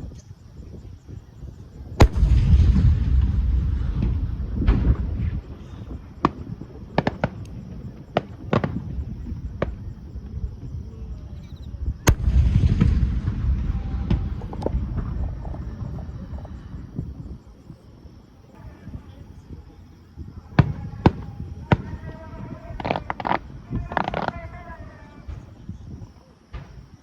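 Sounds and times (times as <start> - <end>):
fireworks booms: 0.0 - 27.0
sharp firework cracks: 2.0 - 10.6, 11.9 - 17.1, 20.6 - 25.7.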